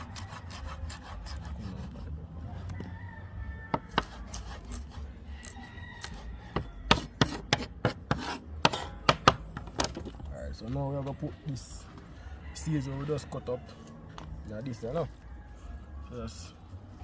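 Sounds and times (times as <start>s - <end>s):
knife scraping through vegetables: 0.0s - 2.1s, 4.0s - 6.3s, 7.0s - 8.9s.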